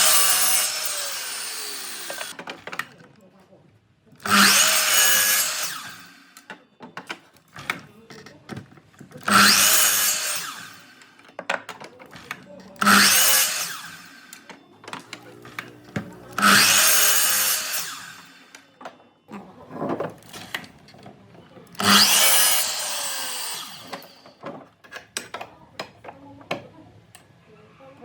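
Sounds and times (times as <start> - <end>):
power tool whining on wood: 0.0 - 2.4, 4.2 - 6.5, 9.2 - 11.2, 12.8 - 18.7, 21.7 - 24.4.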